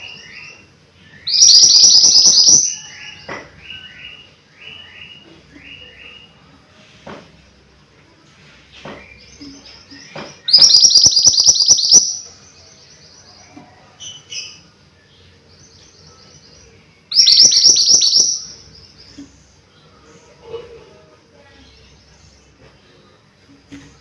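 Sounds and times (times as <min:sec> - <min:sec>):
soft bird chirps: 0:08.6 - 0:20.1
songbird singing high notes: 0:10.5 - 0:12.2, 0:17.1 - 0:18.6.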